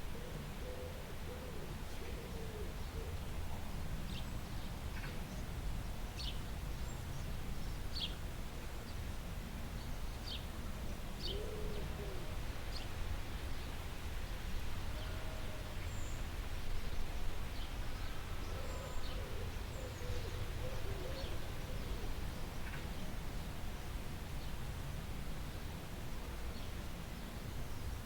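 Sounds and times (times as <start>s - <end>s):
bird hooting or cooing: 0.1s - 3.2s, 11.3s - 12.4s, 18.5s - 22.2s.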